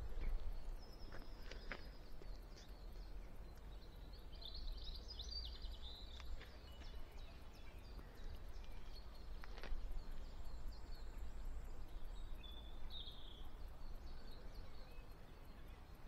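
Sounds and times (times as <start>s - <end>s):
steady low rumble: 0.0s - 1.4s
songbird twittering: 0.0s - 16.0s.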